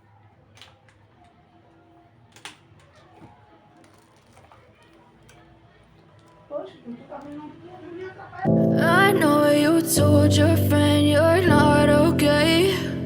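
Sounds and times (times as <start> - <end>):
soft clicks: 0.4 - 6.5.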